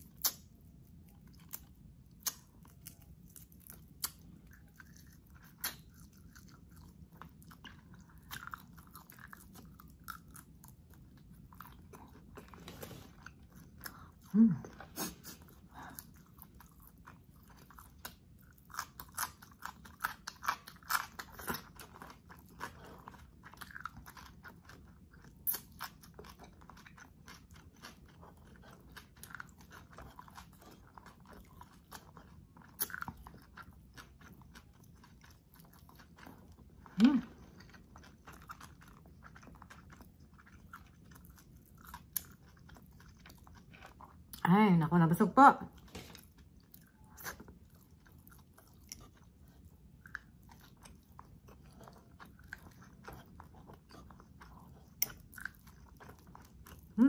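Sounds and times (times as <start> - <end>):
chewing and crunching food: 0.0 - 57.0
person humming: 14.3 - 14.7, 37.0 - 37.3.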